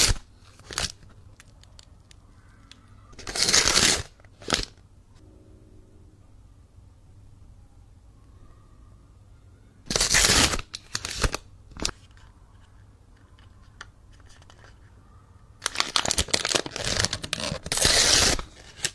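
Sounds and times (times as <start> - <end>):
packaging crinkling and tearing: 0.0 - 2.5, 3.2 - 4.8, 9.9 - 12.2, 15.6 - 18.9.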